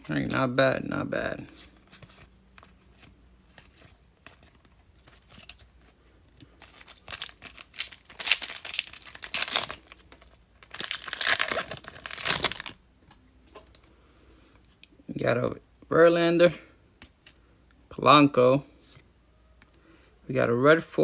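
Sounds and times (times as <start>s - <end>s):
foil wrapper tearing and crinkling: 6.6s - 12.8s.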